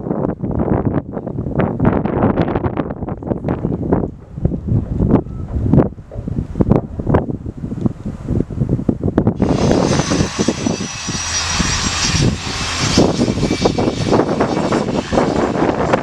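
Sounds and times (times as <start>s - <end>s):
aircraft engine running: 9.4s - 16.0s.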